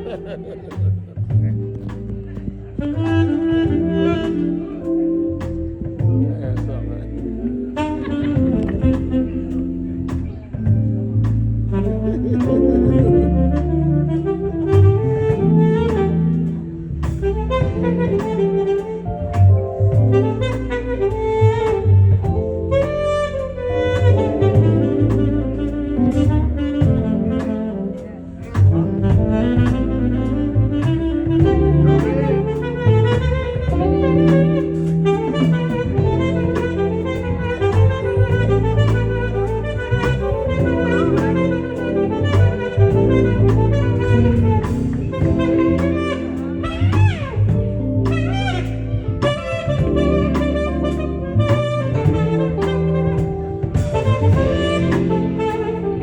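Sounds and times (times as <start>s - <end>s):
bass line: 0.0s - 56.0s
drum kit steady beat: 0.0s - 56.0s
saxophone melody: 0.0s - 56.0s
drum beat: 32.9s - 56.0s.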